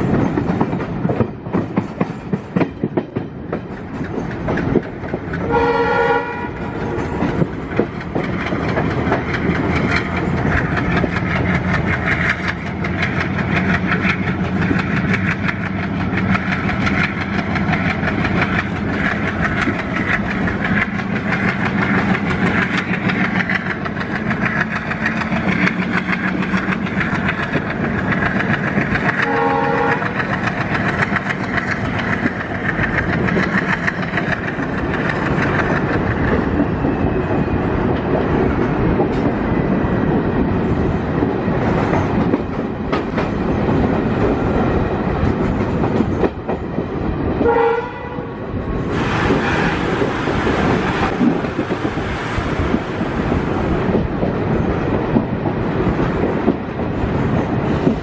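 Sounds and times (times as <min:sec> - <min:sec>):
train wheels on rails: 0:00.0 - 0:58.0
train horn: 0:05.4 - 0:06.6, 0:29.2 - 0:30.3, 0:47.4 - 0:48.4.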